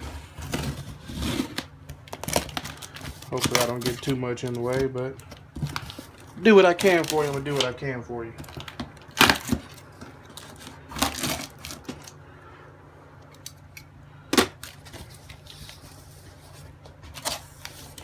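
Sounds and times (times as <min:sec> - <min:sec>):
cardboard flaps scraping and clicking: 0:00.0 - 0:04.9.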